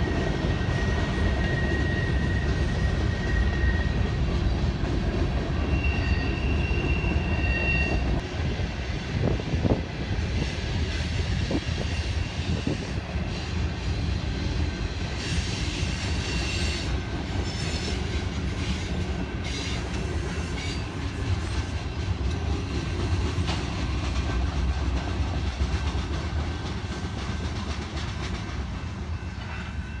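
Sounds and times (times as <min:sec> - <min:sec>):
freight train rumbling on rails: 0:00.0 - 0:30.0
train wheel clatter: 0:00.0 - 0:30.0.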